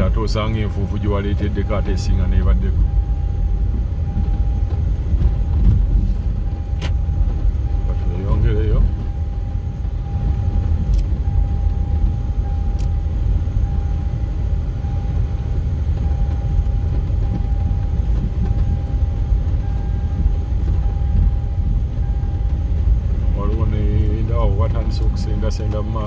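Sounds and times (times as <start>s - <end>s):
vehicle rumbling on road: 0.0s - 26.0s.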